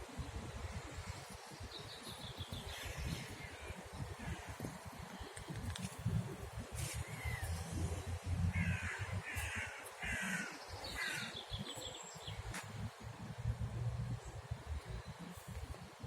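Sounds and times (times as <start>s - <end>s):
crow cawing: 8.5s - 11.4s.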